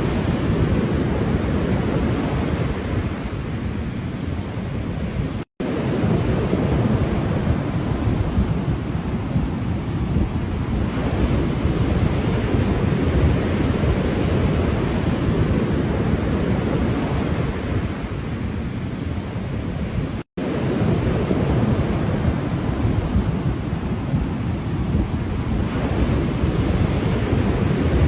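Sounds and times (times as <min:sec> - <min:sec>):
ocean waves washing: 0:00.0 - 0:28.0
wind buffeting microphone: 0:00.0 - 0:28.0.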